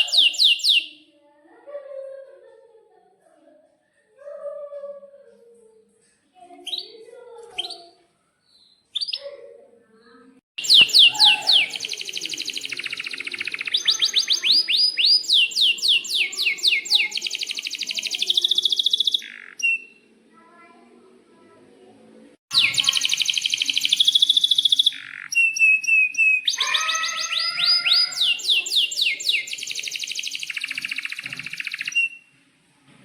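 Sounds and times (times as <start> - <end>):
canary singing: 0.0 - 1.1, 6.6 - 9.3, 10.6 - 20.1, 22.5 - 32.3.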